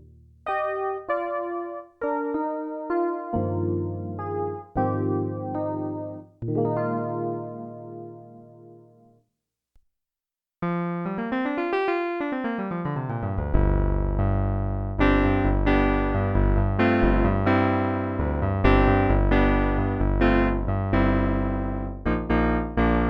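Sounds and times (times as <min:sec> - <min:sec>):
synthesizer notes and chords: 0:00.0 - 0:09.1, 0:10.6 - 0:23.0.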